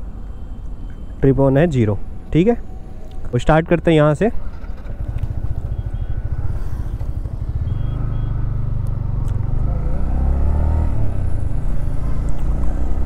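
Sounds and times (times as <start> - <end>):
motorcycle engine accelerating: 4.4 - 13.0.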